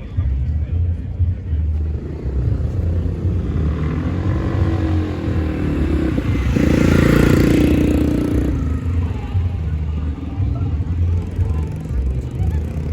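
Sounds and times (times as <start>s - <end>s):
scooter engine passing close: 2.5s - 10.0s
scooters running: 2.9s - 12.9s.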